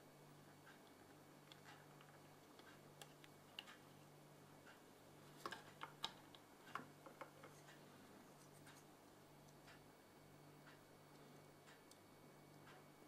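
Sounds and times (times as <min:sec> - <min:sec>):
faint steady hum: 0:00.0 - 0:13.0
small sharp clicks and taps: 0:05.4 - 0:07.8.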